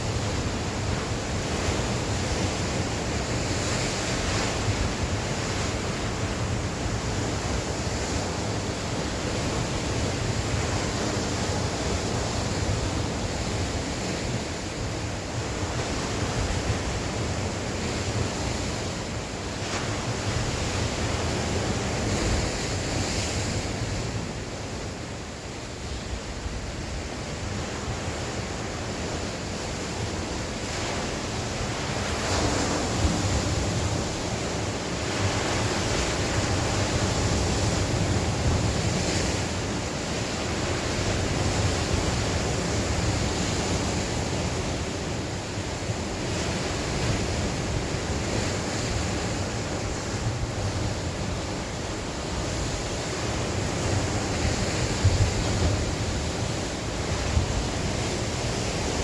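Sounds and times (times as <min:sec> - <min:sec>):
sea waves breaking on shore: 0:00.0 - 0:59.0
wind buffeting microphone: 0:46.4 - 0:59.0.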